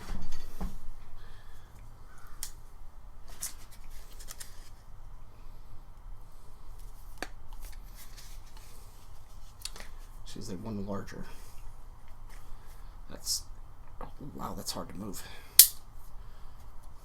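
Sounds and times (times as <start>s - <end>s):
light rustling of small objects: 3.2s - 5.0s, 6.7s - 10.2s.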